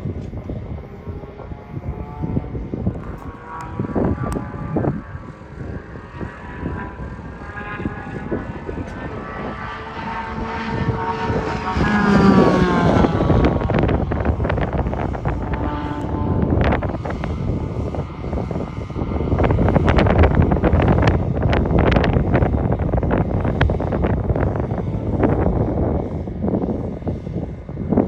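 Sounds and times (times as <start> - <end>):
sports car engine revving: 1.3 - 25.5.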